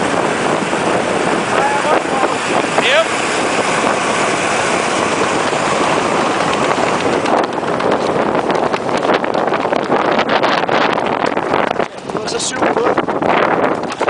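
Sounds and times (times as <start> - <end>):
ice boat rushing over ice: 0.0 - 14.0
wind across microphone: 0.0 - 14.0
sharp clicks and crackles: 5.0 - 12.4, 13.7 - 14.0.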